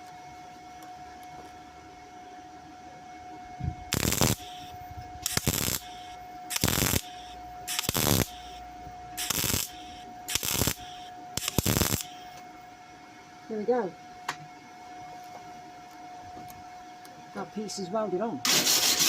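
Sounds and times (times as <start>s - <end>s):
welder arcing: 3.9s - 12.4s, 18.4s - 19.0s.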